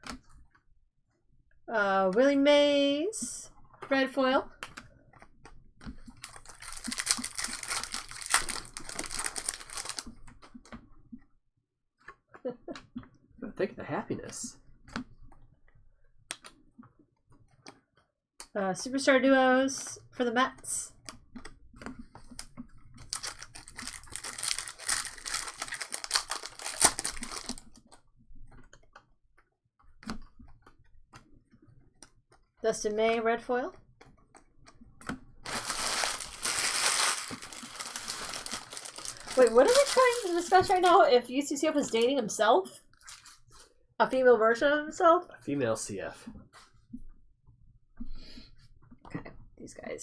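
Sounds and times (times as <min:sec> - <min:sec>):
card pack wrapper crinkling: 0:06.2 - 0:10.1, 0:22.3 - 0:27.8, 0:35.5 - 0:41.2, 0:43.0 - 0:43.4.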